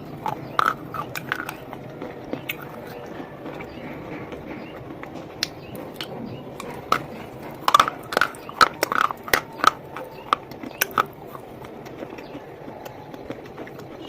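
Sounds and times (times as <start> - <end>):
stone crunched in the mouth: 0.2 - 1.6, 6.0 - 11.5.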